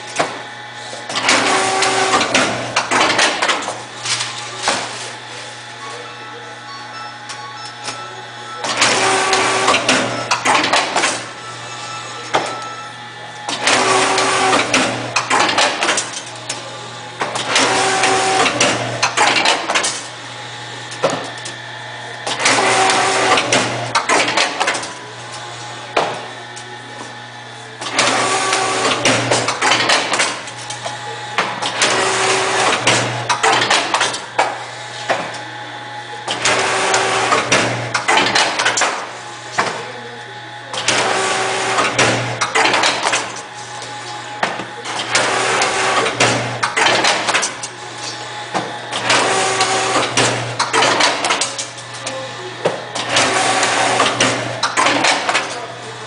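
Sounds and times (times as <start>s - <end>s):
binding machine clattering: 1.1s - 5.0s, 8.6s - 11.3s, 13.4s - 16.6s, 17.2s - 20.1s, 22.2s - 25.0s, 27.8s - 35.3s, 36.3s - 39.8s, 40.7s - 43.6s, 44.3s - 52.0s, 52.9s - 55.6s.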